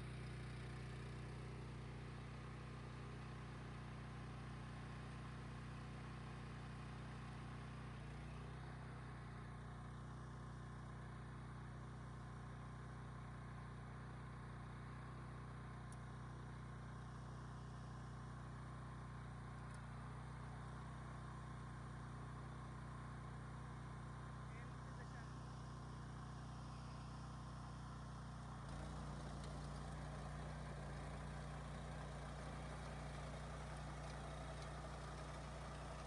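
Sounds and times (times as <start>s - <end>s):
garden tiller engine running: 0.0s - 36.0s.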